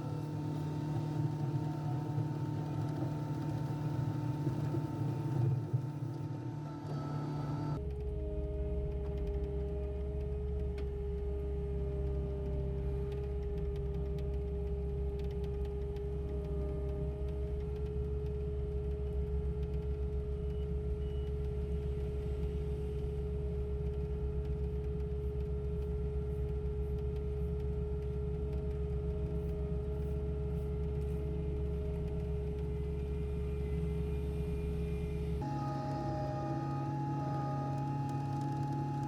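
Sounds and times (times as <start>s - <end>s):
machinery whine: 0.0s - 10.3s, 28.6s - 39.0s.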